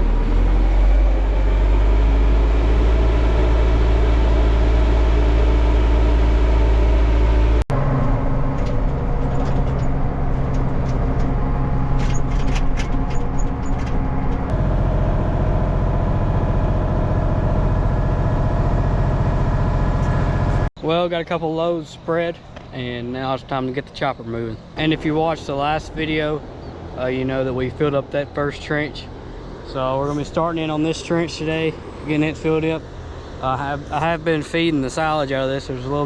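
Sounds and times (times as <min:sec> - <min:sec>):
tractor engine running: 0:00.0 - 0:20.7.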